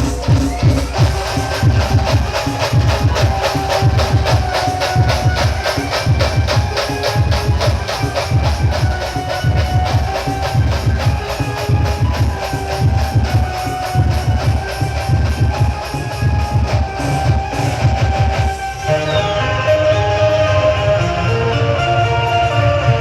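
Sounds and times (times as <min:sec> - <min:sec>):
loud electronic dance music: 0:00.0 - 0:23.0.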